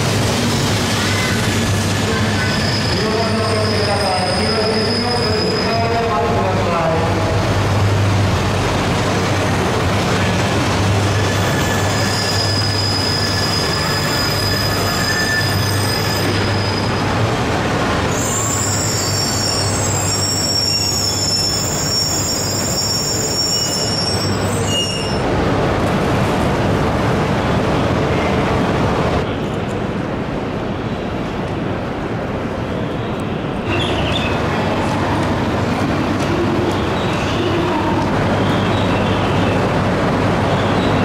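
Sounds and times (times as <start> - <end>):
train rumble: 0.0 - 41.0
high-pitched brake squealing: 2.2 - 6.1, 11.0 - 17.2, 18.1 - 25.3.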